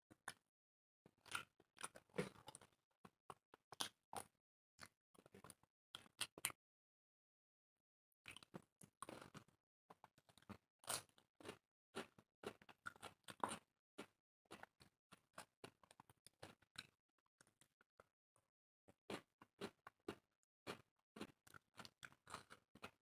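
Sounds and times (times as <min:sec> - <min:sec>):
crunchy chewing: 0:10.2 - 0:17.6, 0:19.1 - 0:23.0.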